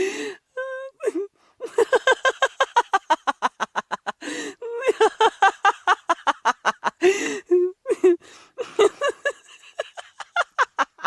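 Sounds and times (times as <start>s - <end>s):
breathy gasps: 0.0s - 0.5s, 4.2s - 4.6s, 7.0s - 7.5s, 8.2s - 8.6s
person laughing hard: 1.6s - 11.0s.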